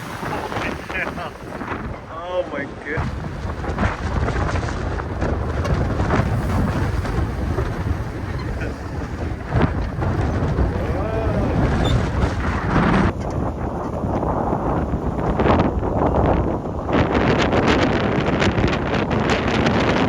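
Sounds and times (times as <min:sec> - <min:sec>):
strong wind on microphone: 0:00.0 - 0:20.0.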